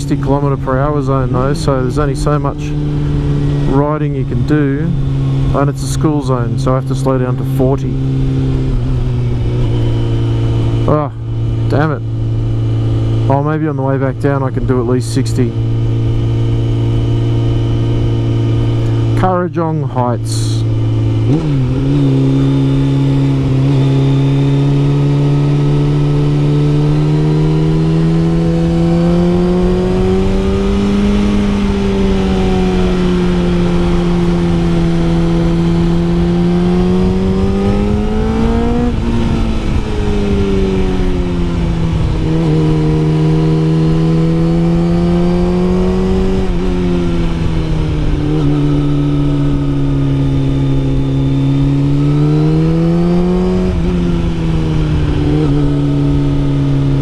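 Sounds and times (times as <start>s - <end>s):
motorcycle engine revving: 0.0s - 57.0s
wind rush: 29.3s - 57.0s.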